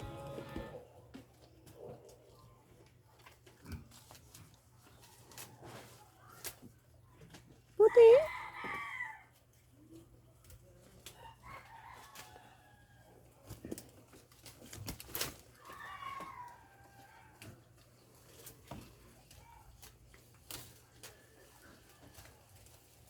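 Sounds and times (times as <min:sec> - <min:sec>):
rooster crowing: 0:08.2 - 0:09.3.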